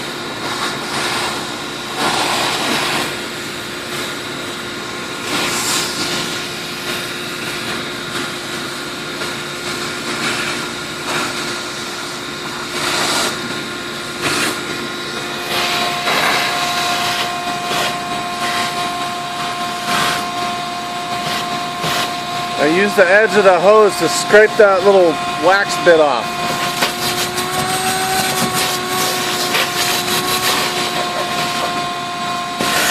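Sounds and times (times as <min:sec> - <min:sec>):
sprayer pump engine running: 0:00.0 - 0:32.9
hissing bursts of spray: 0:00.8 - 0:03.6, 0:05.2 - 0:07.6, 0:21.2 - 0:22.2.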